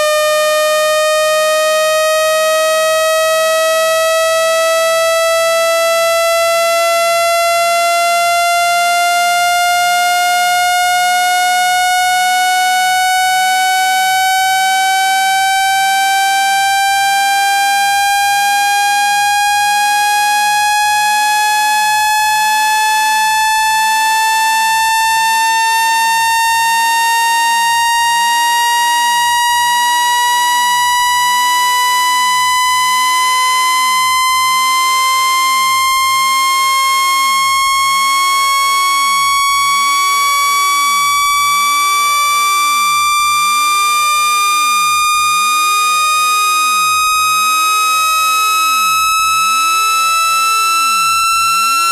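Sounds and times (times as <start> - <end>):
rising electronic sweep tone: 35.5 - 51.9.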